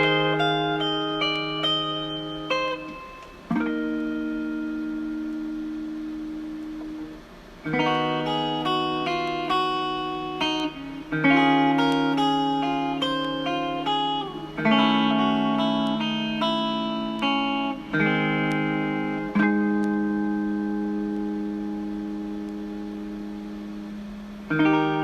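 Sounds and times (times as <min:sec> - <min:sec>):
guitar picked notes and chords: 0:00.0 - 0:25.0.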